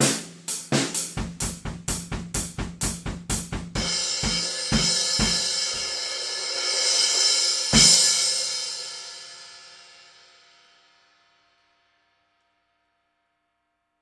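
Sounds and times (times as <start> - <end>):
drum hits: 0.0 - 6.0.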